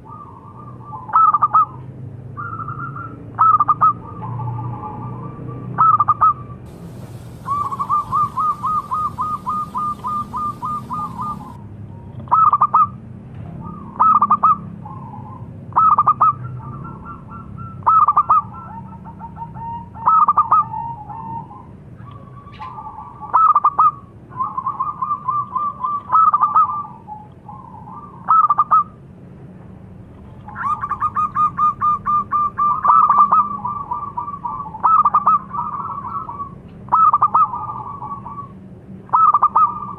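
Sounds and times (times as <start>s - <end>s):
doves cooing: 5.8s - 11.6s, 39.1s - 39.9s
low steady hum: 6.7s - 11.7s.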